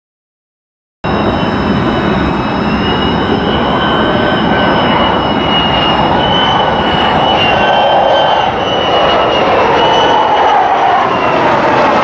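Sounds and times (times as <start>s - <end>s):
high engine whine: 1.0s - 12.0s
jet engine rushing: 1.0s - 12.0s.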